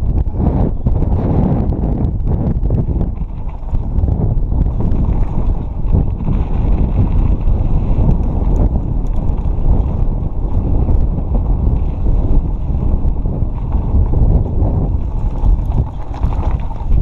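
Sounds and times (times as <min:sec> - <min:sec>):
bike clicks and rattles: 0:00.0 - 0:17.0
tyres rumbling over dirt: 0:00.0 - 0:17.0
wind buffeting microphone: 0:00.0 - 0:17.0.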